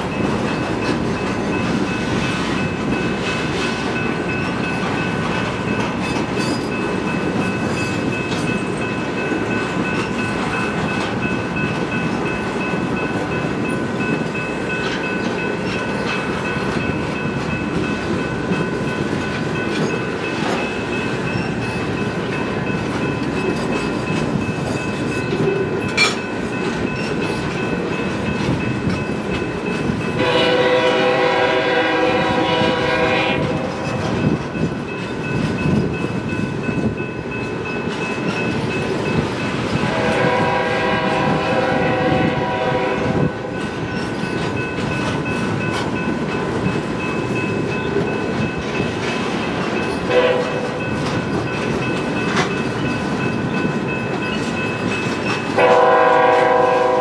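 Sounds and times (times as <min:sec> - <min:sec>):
train wheels rumbling on rails: 0:00.0 - 0:57.0
train horn blasts: 0:30.2 - 0:34.2, 0:39.8 - 0:43.5, 0:50.1 - 0:50.8, 0:55.6 - 0:57.0.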